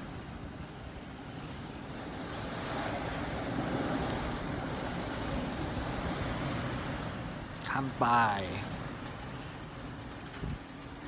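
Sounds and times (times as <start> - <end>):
wind rushing around a building: 0.0 - 11.0.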